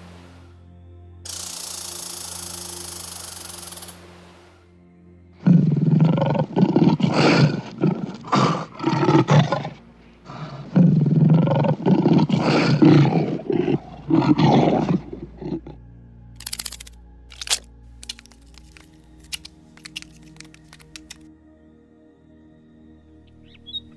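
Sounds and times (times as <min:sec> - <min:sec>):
lion roaring: 0:05.4 - 0:15.8.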